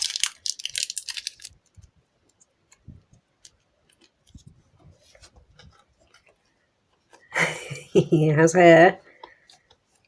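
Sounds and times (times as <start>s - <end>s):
crackles of clay being worked: 9.0s - 10.0s.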